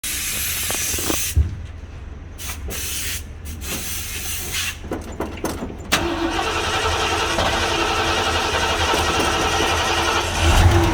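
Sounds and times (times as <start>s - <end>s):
car engine rumbling: 4.8s - 10.9s.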